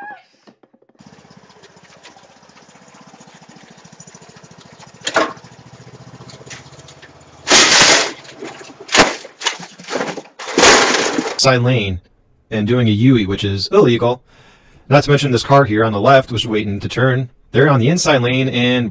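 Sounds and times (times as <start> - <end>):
vehicle engine pulsing drone: 1.0 - 9.0
loud crash of noise: 5.0 - 11.4.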